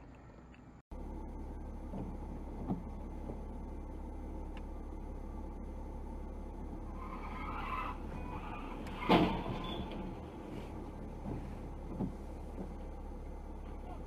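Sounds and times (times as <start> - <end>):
low vehicle rumble: 0.0 - 14.0
car tyres squealing: 6.8 - 13.0.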